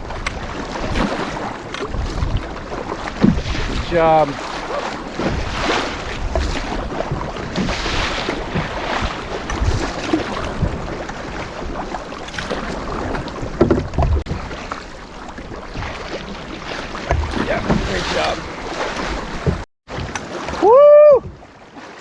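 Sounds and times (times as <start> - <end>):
wind buffeting microphone: 0.0 - 14.6
paddle splashing water: 0.0 - 22.0.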